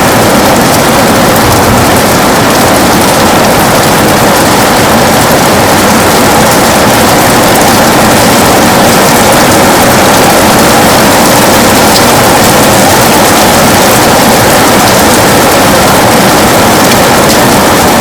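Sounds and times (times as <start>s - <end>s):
heavy rain on a window: 0.0s - 18.0s.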